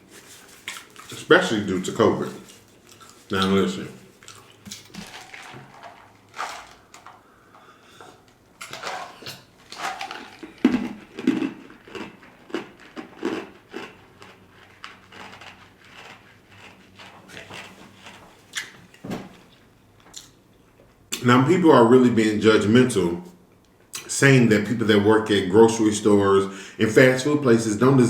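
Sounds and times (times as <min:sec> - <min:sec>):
person crunching and chewing: 0:00.1 - 0:07.2, 0:08.2 - 0:18.8.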